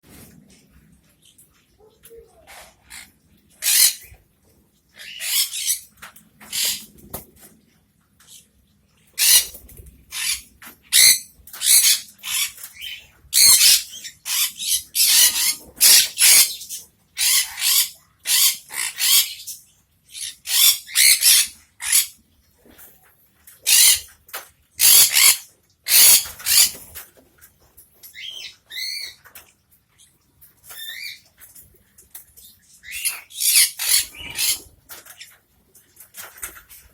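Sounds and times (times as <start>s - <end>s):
parrots screeching: 2.5s - 4.2s, 5.0s - 5.9s, 6.5s - 6.9s, 9.2s - 22.2s, 23.6s - 24.1s, 24.8s - 26.8s, 28.2s - 29.2s, 32.8s - 34.7s.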